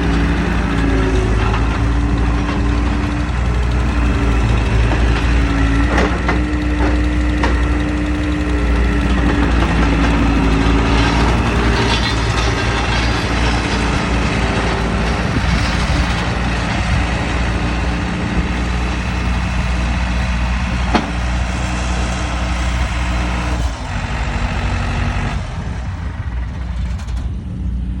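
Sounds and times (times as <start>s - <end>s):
diesel engine running: 0.0s - 28.0s
held whine: 0.0s - 28.0s.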